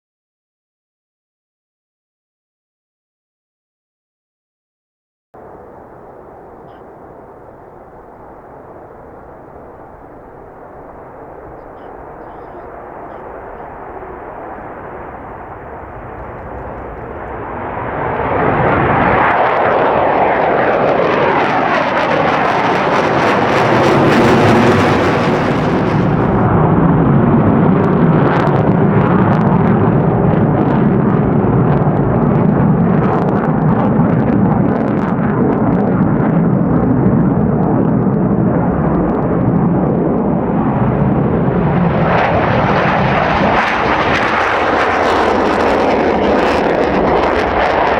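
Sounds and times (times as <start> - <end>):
jet flying past: 5.4 - 47.9.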